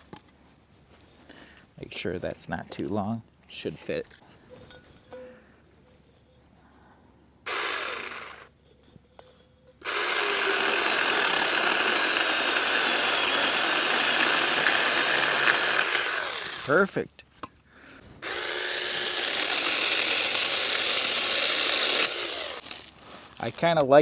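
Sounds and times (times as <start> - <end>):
electric chainsaw cutting wood: 7.5 - 8.5, 9.8 - 16.9, 18.2 - 22.7.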